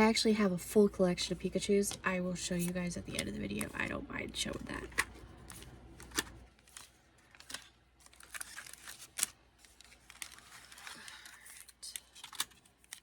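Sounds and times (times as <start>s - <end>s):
packaging crinkling: 2.6s - 13.0s
cards clicking and tapping: 4.5s - 7.7s.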